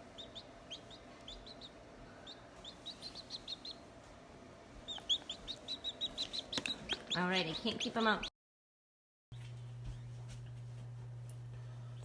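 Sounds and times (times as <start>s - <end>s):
chick peeping: 0.0s - 3.9s, 4.8s - 8.3s.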